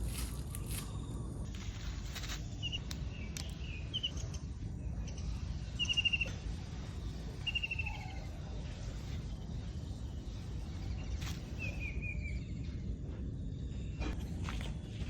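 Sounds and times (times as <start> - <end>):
low rumble: 0.0 - 15.0
small bird calling: 2.2 - 6.5, 7.3 - 9.8.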